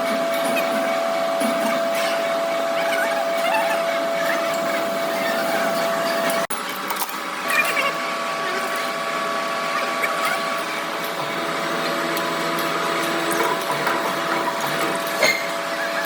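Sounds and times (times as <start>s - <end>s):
workshop machinery humming and whining: 0.0s - 16.0s.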